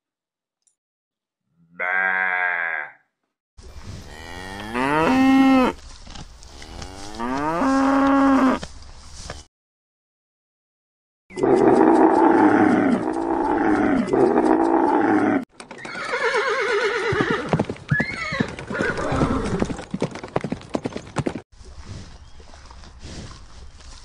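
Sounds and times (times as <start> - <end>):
camel moaning: 11.3 - 15.4.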